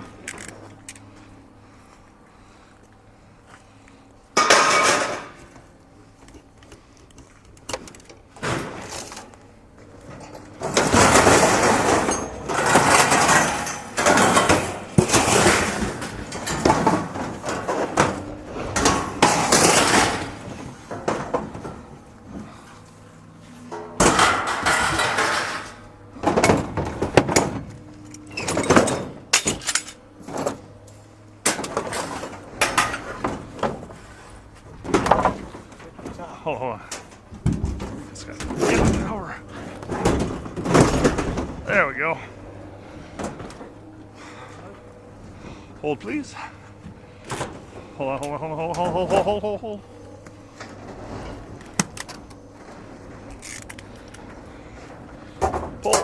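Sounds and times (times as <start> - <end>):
scrap metal crashing onto pile: 4.4 - 5.4, 10.6 - 21.8, 23.9 - 27.6, 37.5 - 41.8.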